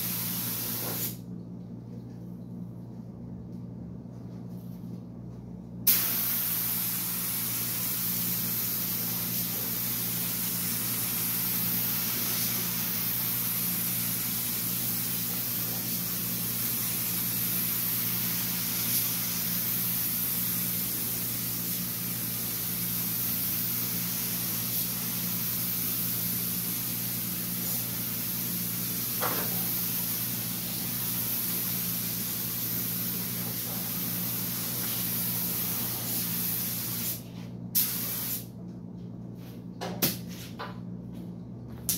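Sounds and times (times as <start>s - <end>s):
paint spray gun hissing: 0.0s - 1.2s, 5.9s - 37.2s, 37.8s - 38.4s.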